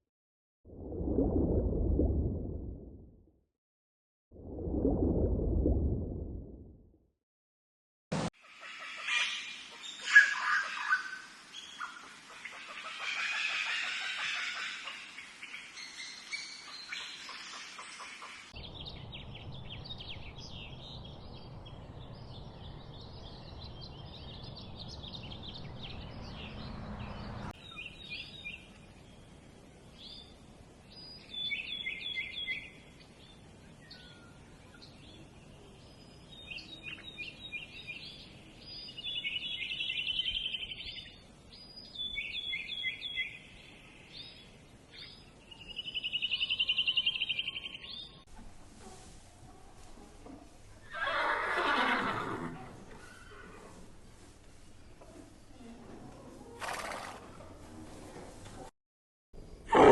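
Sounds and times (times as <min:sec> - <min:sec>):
birds chirping and trilling: 0:08.4 - 0:29.2, 0:30.9 - 0:48.3.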